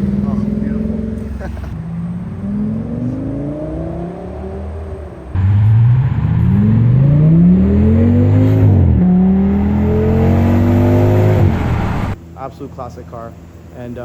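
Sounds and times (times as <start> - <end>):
car engine accelerating hard: 0.0 - 12.2.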